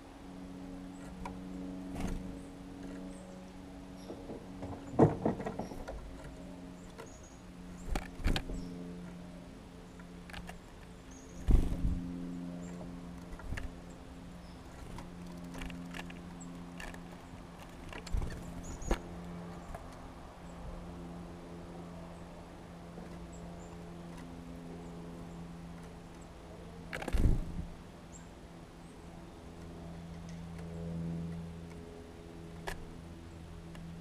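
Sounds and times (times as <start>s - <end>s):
steady low hum: 0.0s - 34.0s
sharp taps and knocks: 4.0s - 7.1s.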